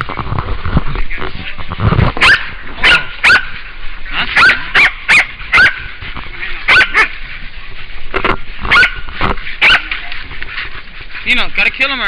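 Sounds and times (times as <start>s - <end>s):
dogs barking: 2.2s - 11.3s.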